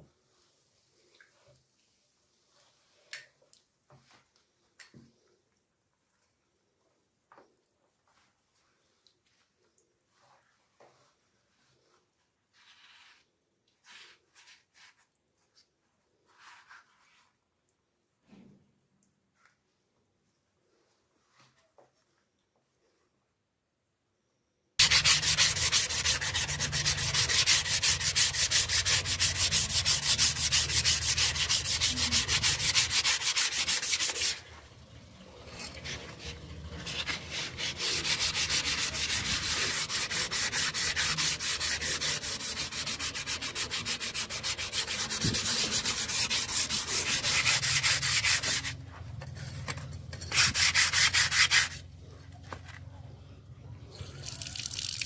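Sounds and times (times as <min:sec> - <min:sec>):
sanding steel blade: 0:24.8 - 0:34.5, 0:35.5 - 0:48.8, 0:49.4 - 0:51.8.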